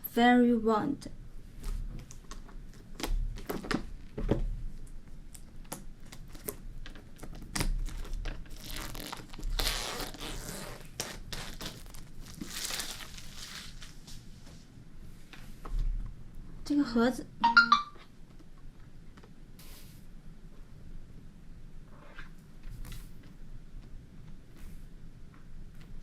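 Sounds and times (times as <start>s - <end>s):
packaging crinkling and tearing: 5.3s - 14.1s.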